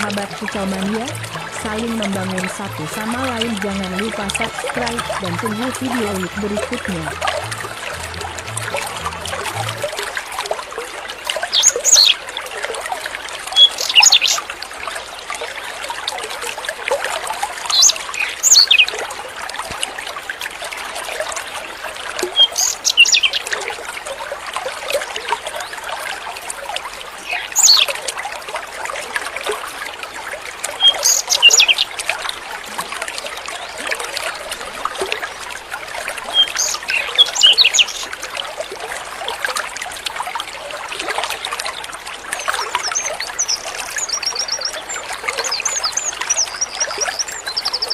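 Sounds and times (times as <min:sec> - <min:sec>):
water trickling: 0:00.0 - 0:47.9
songbird singing: 0:36.3 - 0:38.1, 0:42.4 - 0:47.9.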